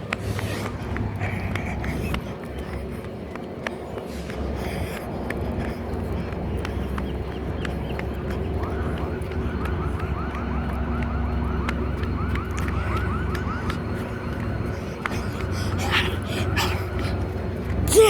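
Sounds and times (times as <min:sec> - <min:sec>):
siren yelping: 0:08.1 - 0:18.0.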